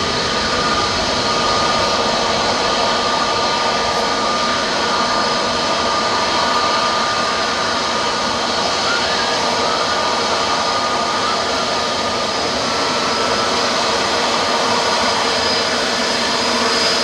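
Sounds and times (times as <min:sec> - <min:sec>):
jet engines roaring with whine: 0:00.0 - 0:17.0.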